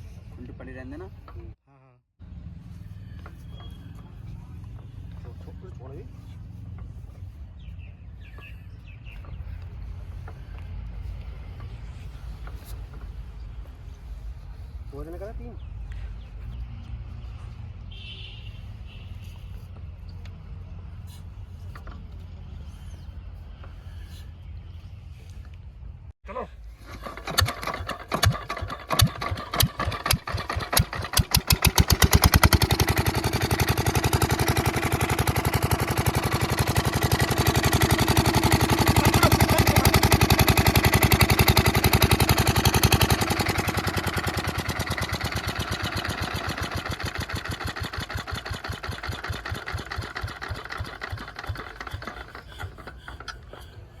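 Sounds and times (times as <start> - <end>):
diesel engine running: 26.8 - 54.0.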